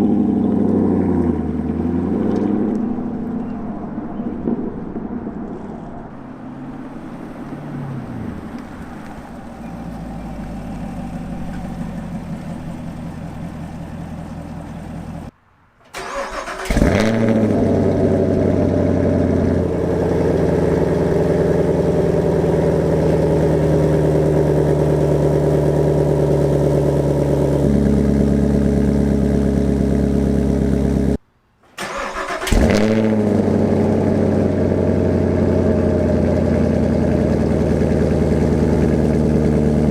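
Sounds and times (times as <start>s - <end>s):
car engine idling: 0.0s - 39.9s
car engine starting: 0.0s - 39.9s.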